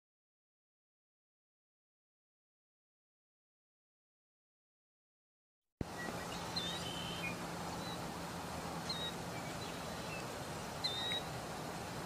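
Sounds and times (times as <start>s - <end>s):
outdoor hiss: 5.8s - 12.0s
short whistled bird calls: 6.0s - 8.0s, 8.8s - 11.3s.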